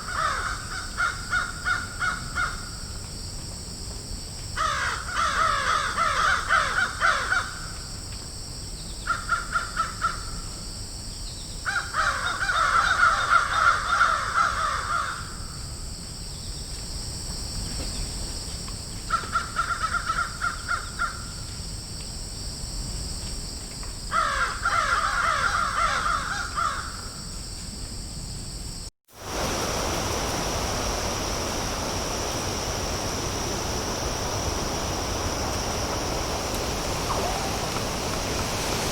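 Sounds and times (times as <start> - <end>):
crows cawing: 0.0 - 2.7, 4.6 - 7.6, 11.7 - 15.4, 24.2 - 27.1
steady hiss: 29.1 - 38.9.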